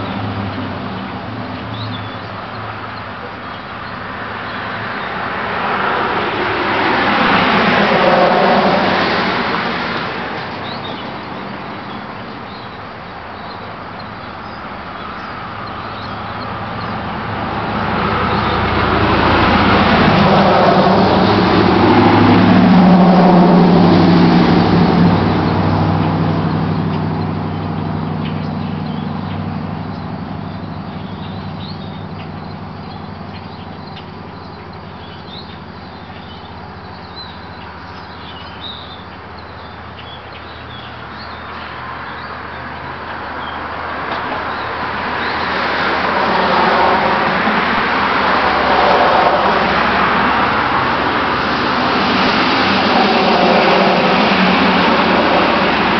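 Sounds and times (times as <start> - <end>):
pickup truck engine driving past: 4.1 - 12.1, 14.4 - 39.2, 40.7 - 55.9.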